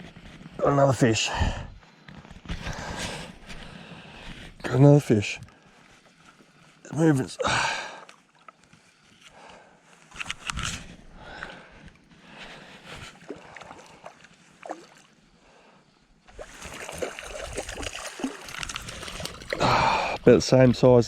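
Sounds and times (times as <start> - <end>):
water sloshing and splashing: 12.8 - 15.2, 16.3 - 20.2.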